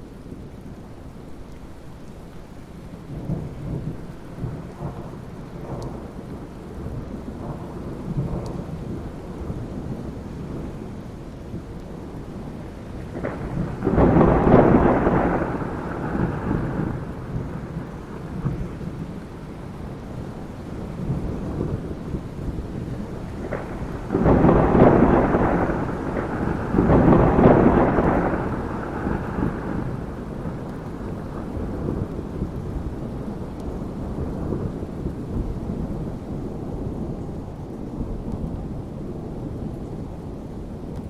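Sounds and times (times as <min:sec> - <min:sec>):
steady rain: 0:00.0 - 0:41.0
thunder rumbling: 0:03.0 - 0:41.0
loud thunderclap: 0:13.1 - 0:18.7, 0:23.4 - 0:32.6.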